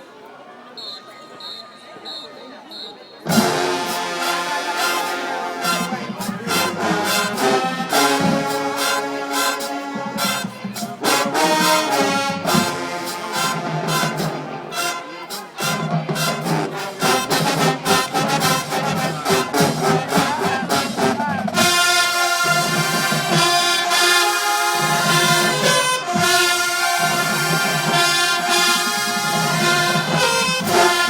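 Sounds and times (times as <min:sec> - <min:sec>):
trumpets: 0:01.4 - 0:31.0
drums: 0:03.2 - 0:31.0
marching band playing: 0:03.2 - 0:31.0
trombones: 0:03.2 - 0:31.0.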